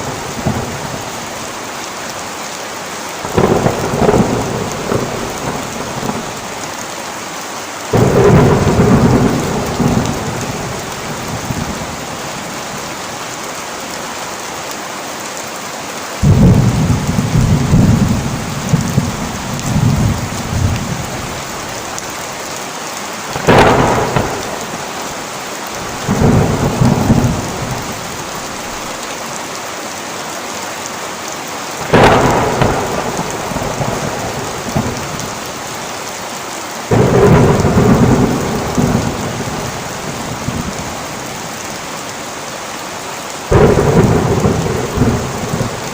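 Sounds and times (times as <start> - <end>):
thunder rumbling: 0.0 - 1.5, 3.2 - 6.6, 7.9 - 12.6, 16.2 - 22.2, 23.3 - 29.0, 31.8 - 35.6, 36.9 - 41.9, 43.5 - 45.9
heavy rain pouring: 0.0 - 45.9.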